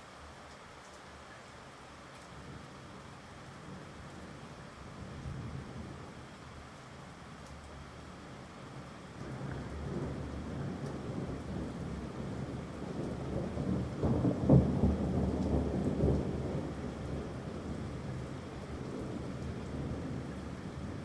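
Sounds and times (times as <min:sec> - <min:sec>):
steady rain falling: 0:00.0 - 0:21.0
thunder rolling and cracking: 0:09.4 - 0:21.0.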